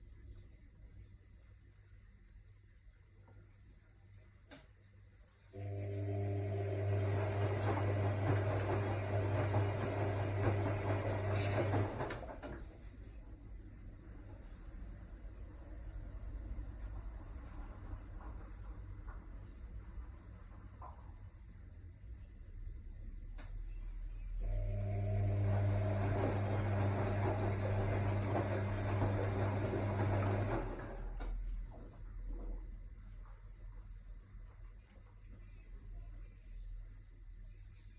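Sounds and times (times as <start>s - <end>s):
washing machine electric hum: 0.0s - 37.9s
washing machine motor humming: 5.5s - 12.8s, 24.4s - 31.5s.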